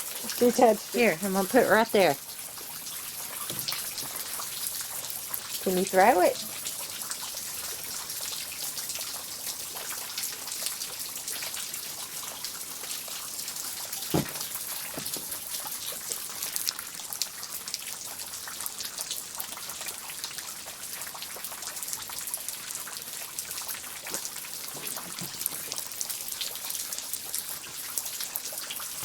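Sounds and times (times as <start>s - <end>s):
rain falling: 0.0s - 29.0s
dull thump: 14.1s - 15.4s.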